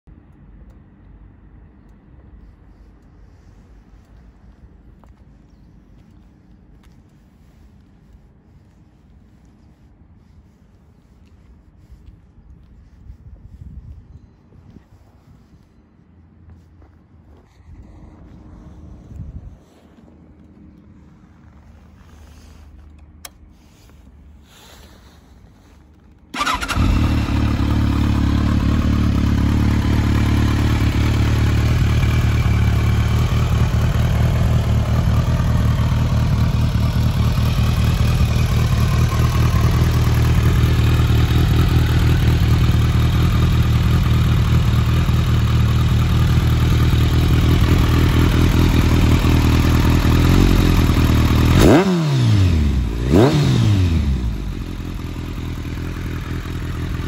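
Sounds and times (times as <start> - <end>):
motorcycle engine starting and idling: 21.1 - 57.0.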